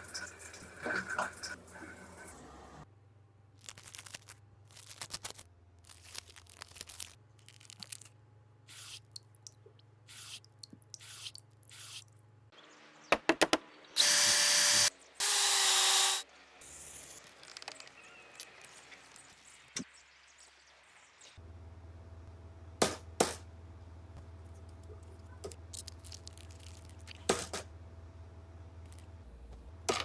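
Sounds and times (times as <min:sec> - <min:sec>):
power tool running in bursts: 0:14.0 - 0:16.2.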